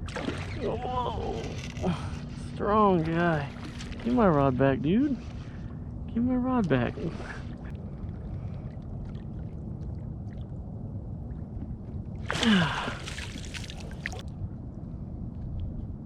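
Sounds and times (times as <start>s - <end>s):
water splashing: 0.0s - 0.8s, 2.9s - 5.7s, 11.3s - 14.2s.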